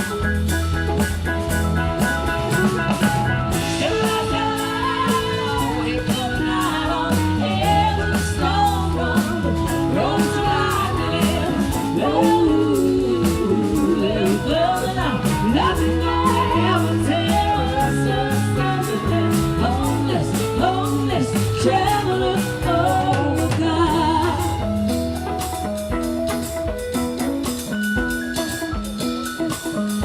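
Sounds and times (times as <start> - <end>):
bass guitar: 0.0 - 30.0
drum kit beat: 0.0 - 30.0
guitar: 0.0 - 30.0
person singing: 3.6 - 24.8.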